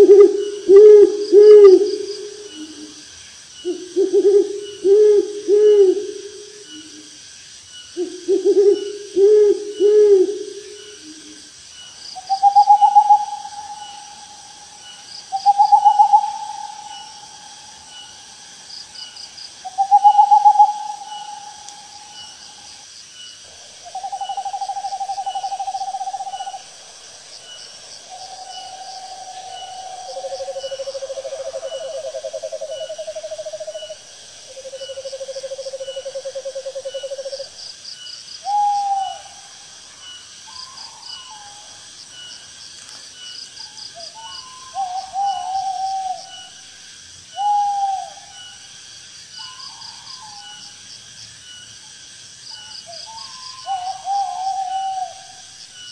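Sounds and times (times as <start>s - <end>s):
insects chirping: 0.0s - 55.9s
owls calling with trembling trills: 12.2s - 18.2s, 19.7s - 22.6s, 47.4s - 48.6s.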